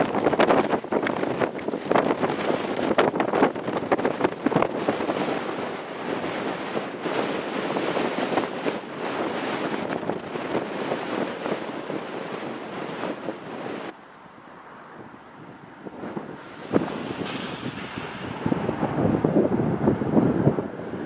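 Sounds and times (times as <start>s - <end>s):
train wheels clattering on rails: 0.0s - 13.4s
wind on microphone: 0.0s - 21.0s.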